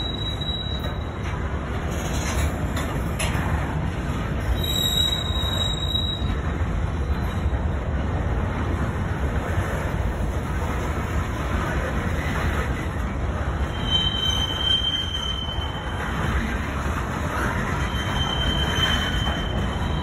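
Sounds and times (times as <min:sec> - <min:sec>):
high squeal: 0:00.0 - 0:01.2, 0:04.5 - 0:06.4, 0:13.7 - 0:16.3, 0:17.6 - 0:20.0
freight train wheels rumbling: 0:00.0 - 0:20.0.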